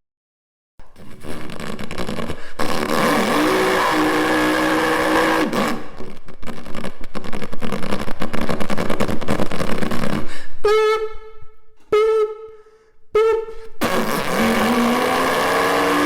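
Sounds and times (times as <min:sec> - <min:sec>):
person imitating car engine: 0:02.8 - 0:05.7, 0:13.2 - 0:16.0
person imitating car horn: 0:02.9 - 0:05.7, 0:10.6 - 0:16.0.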